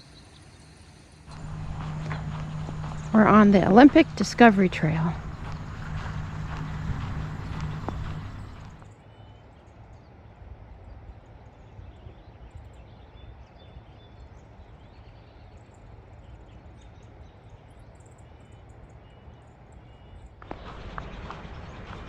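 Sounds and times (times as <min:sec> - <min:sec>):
low steady rumble: 0:01.3 - 0:08.9, 0:20.4 - 0:22.0.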